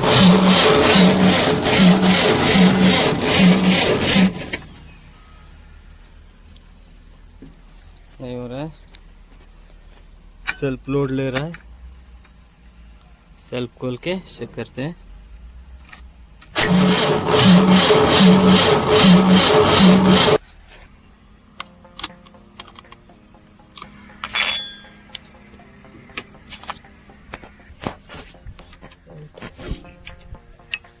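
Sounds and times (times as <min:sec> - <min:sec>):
starter motor cranking diesel engine: 0:00.0 - 0:05.0, 0:16.6 - 0:20.4.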